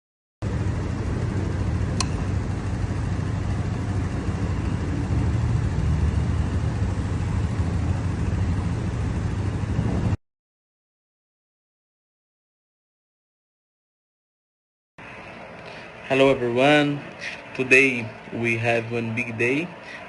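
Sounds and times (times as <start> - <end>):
low vehicle rumble: 0.4 - 10.2, 15.0 - 20.0
sharp click: 2.0 - 2.2.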